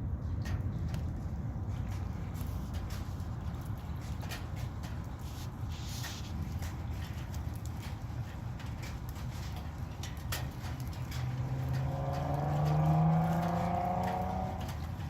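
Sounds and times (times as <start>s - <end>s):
raindrops ticking: 0.0s - 15.0s
vehicle engine passing by: 10.7s - 15.0s.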